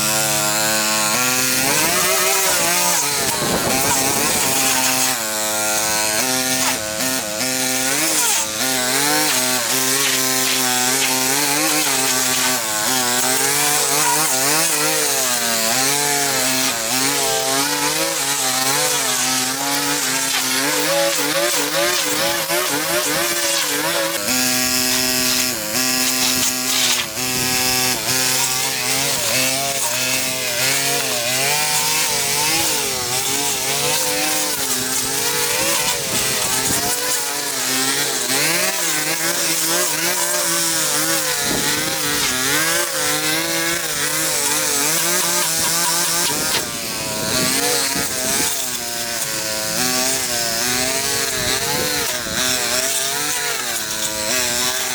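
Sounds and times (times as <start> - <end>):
two-stroke engine under load: 0.0 - 8.8.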